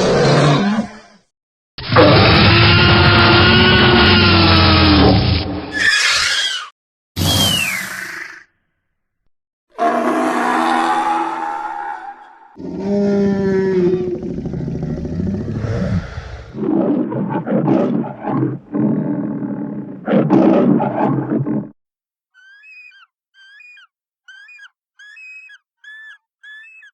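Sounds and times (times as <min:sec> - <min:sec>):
dinosaur roaring: 0:00.0 - 0:01.2, 0:01.8 - 0:05.9, 0:09.8 - 0:21.8.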